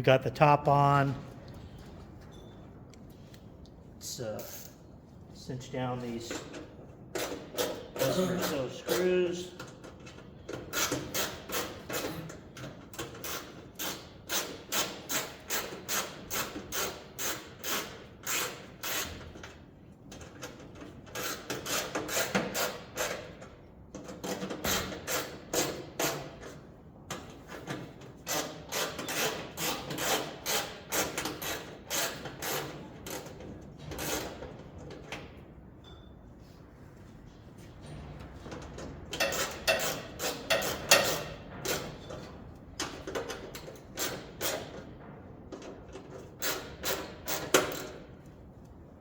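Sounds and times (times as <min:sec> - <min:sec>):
screws tightening into sheet metal: 0:07.1 - 0:09.2, 0:10.1 - 0:19.4, 0:21.1 - 0:23.5, 0:24.2 - 0:26.6, 0:27.6 - 0:34.6, 0:39.2 - 0:42.1, 0:43.2 - 0:44.9, 0:46.1 - 0:48.1.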